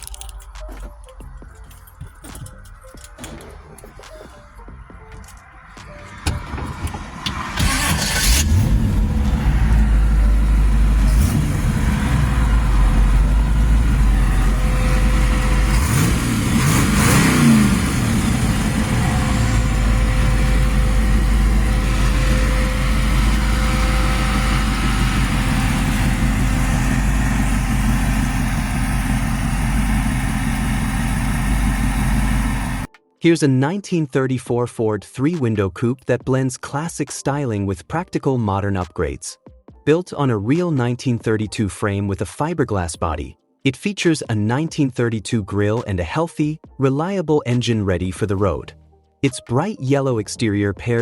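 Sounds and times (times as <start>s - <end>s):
car engine starting and idling: 0.0s - 32.9s
engine revving: 5.6s - 32.9s.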